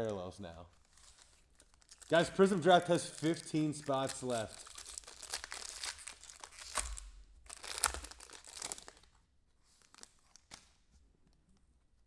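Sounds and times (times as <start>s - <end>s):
wrapper tearing and crinkling: 0.7s - 10.8s
cards clicking and rustling: 0.8s - 9.0s.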